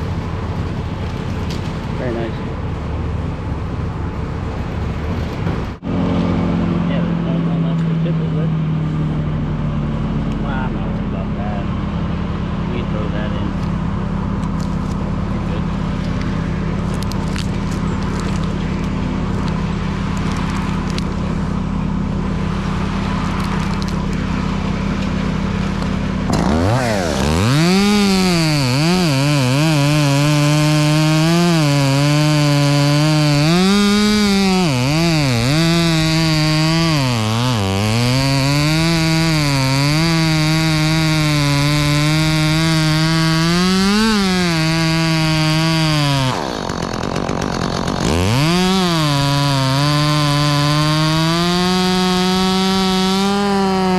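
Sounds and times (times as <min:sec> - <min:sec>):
engine drone: 0:00.0 - 0:53.9
chainsaw cutting wood: 0:22.4 - 0:53.9.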